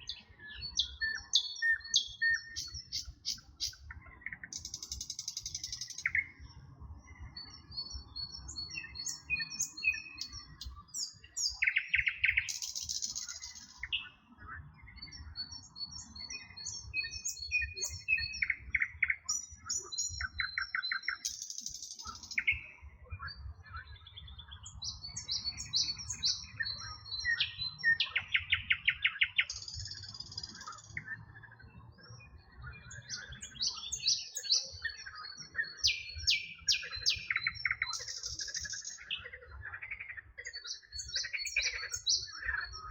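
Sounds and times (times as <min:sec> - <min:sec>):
songbirds singing: 0:00.0 - 0:42.9.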